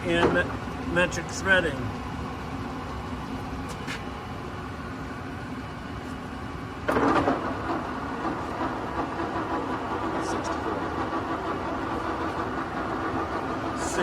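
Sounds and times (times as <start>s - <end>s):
lathe running with mechanical hum: 0.0s - 14.0s.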